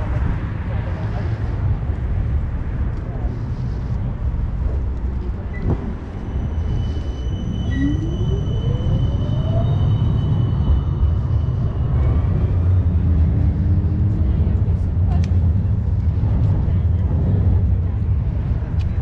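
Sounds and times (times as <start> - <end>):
tram rumbling: 0.0 - 19.0
motor whine rising in pitch: 6.8 - 11.6.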